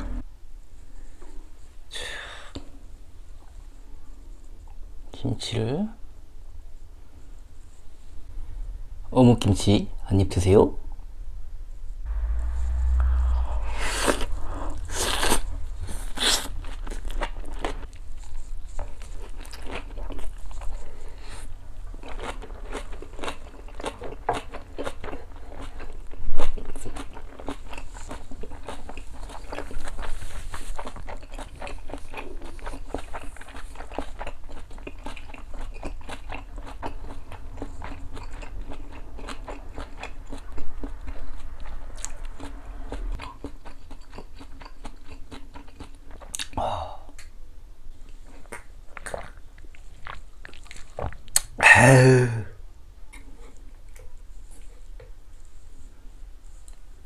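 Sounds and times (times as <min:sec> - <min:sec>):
short voice-like sound: 0:12.1 - 0:16.5, 0:51.6 - 0:52.5
man chewing with wet mouth clicks: 0:22.0 - 0:30.1, 0:30.8 - 0:47.4, 0:48.1 - 0:51.6.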